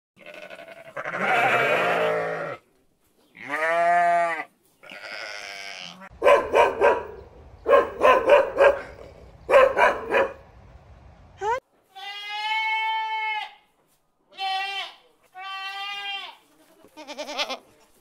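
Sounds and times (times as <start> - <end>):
lambs bleating: 0.2 - 2.6, 3.4 - 6.1, 11.9 - 13.6, 14.3 - 17.7
dog barking: 6.2 - 10.4.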